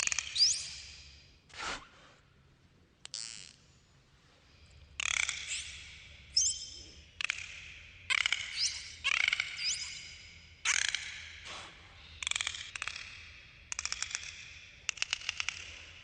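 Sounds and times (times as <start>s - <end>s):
dolphin clicking and buzzing: 12.2s - 16.0s.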